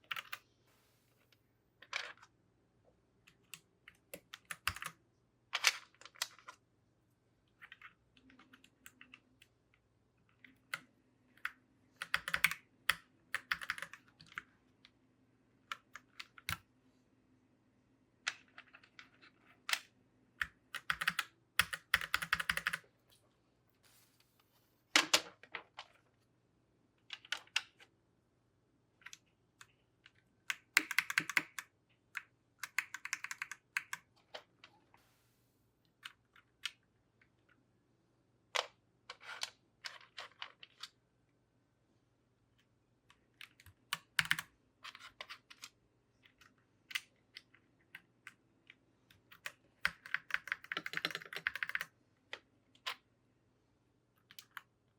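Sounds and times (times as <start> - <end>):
keycaps clicking onto keyboard: 4.2 - 5.0, 12.0 - 12.6, 20.4 - 22.8, 30.5 - 31.7, 32.6 - 34.1, 49.4 - 51.9.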